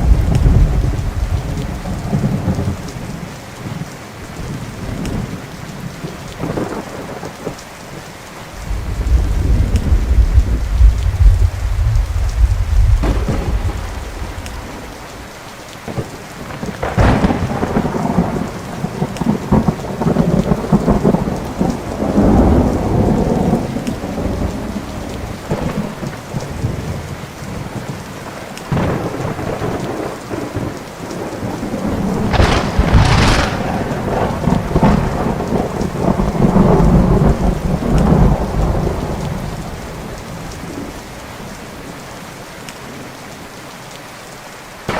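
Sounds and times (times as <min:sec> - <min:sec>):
thunder rumbling: 0:00.0 - 0:03.2, 0:08.6 - 0:42.0
rain falling: 0:00.0 - 0:44.9
sharp thunder crack: 0:08.6 - 0:14.9, 0:16.7 - 0:23.6, 0:31.7 - 0:39.6.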